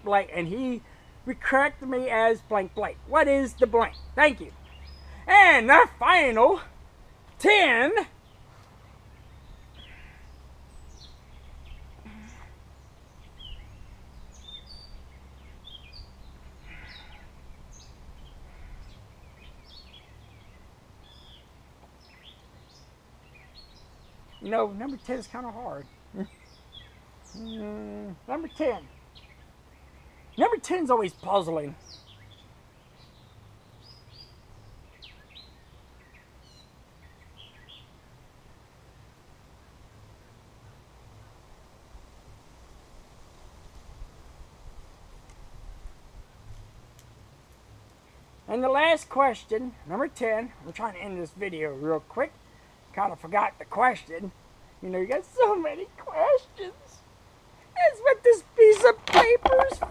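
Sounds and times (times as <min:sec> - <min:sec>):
birds chirping and calling: 0:00.0 - 0:38.0, 0:48.1 - 0:59.9.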